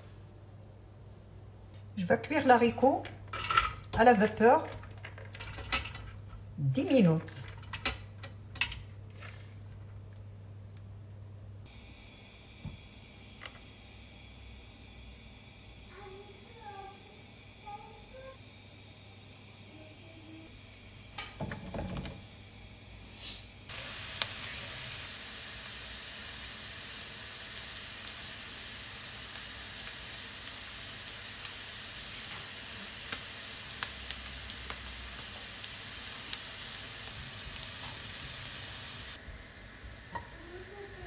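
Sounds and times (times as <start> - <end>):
potatoes sizzling with pops: 11.7 - 41.0.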